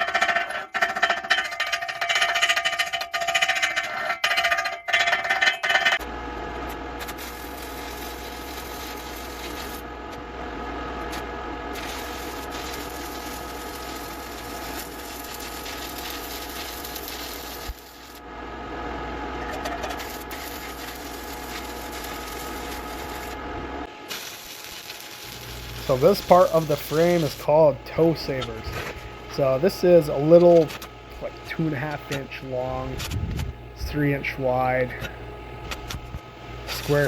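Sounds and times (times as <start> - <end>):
welding arc crackling: 6.5 - 10.2, 11.0 - 18.2, 19.4 - 37.0.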